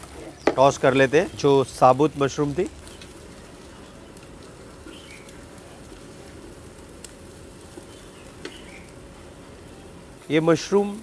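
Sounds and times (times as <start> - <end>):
mushrooms and garlic frying in oil: 0.0 - 11.0
faint high chirps: 4.8 - 5.5, 7.8 - 9.0.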